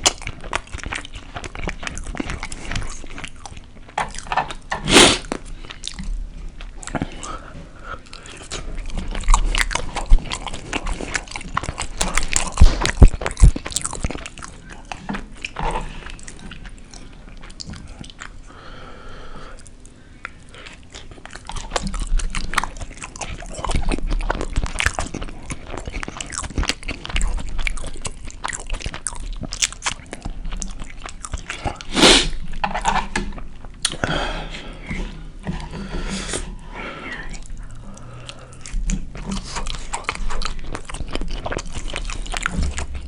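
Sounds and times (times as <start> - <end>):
person chewing food: 0.0 - 43.0.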